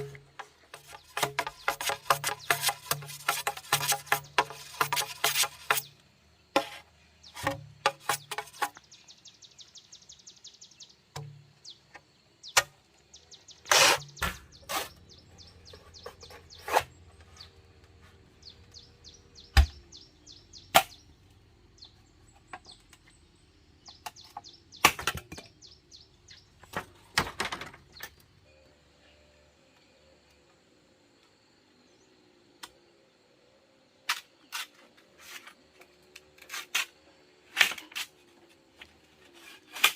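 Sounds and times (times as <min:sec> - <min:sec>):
sharp knocks and taps: 0:00.0 - 0:05.9
faint bird chirps: 0:27.9 - 0:30.6.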